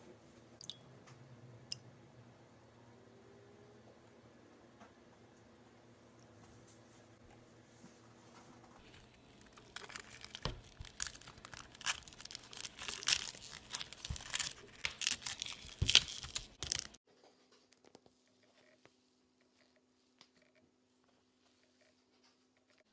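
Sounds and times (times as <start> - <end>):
crinkling and tearing: 8.8 - 17.0.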